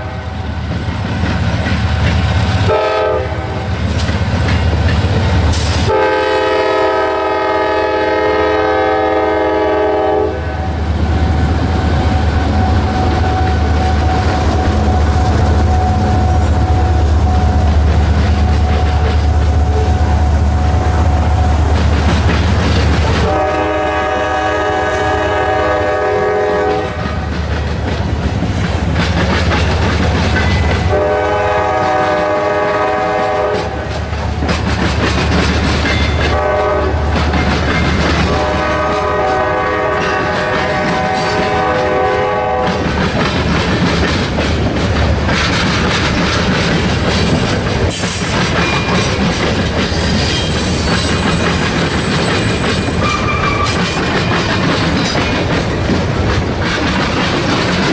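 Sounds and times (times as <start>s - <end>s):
train air horn blasts: 0.0s - 0.5s, 2.6s - 3.8s, 5.5s - 11.5s, 12.2s - 22.0s, 23.0s - 27.3s, 30.6s - 33.9s, 35.9s - 42.8s, 52.9s - 53.9s
locomotive and wheels rumbling: 0.0s - 57.9s.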